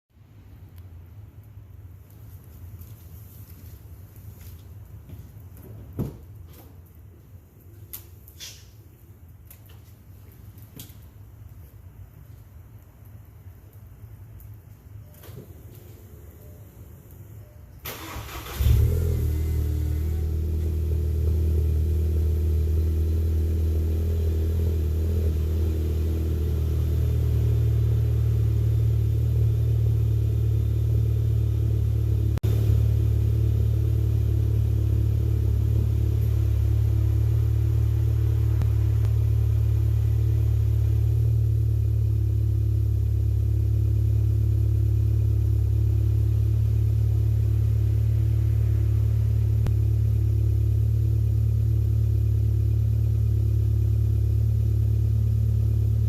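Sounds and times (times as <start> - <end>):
car engine idling: 17.8 - 56.0.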